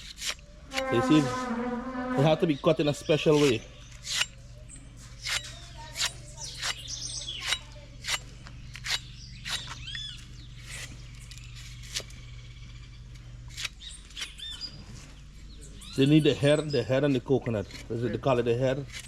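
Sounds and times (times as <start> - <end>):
machete chopping coconut husks: 0.0 - 0.8, 3.2 - 4.4, 5.0 - 12.3, 17.1 - 19.0
small birds chirping: 0.0 - 19.0.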